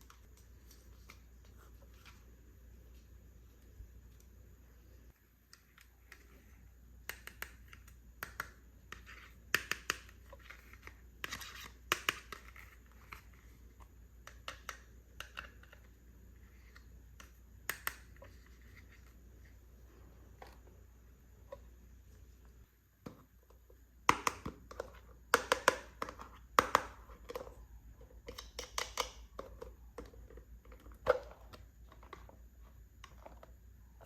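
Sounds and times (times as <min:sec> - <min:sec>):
toy pieces clicking and tapping: 0:28.2 - 0:32.2.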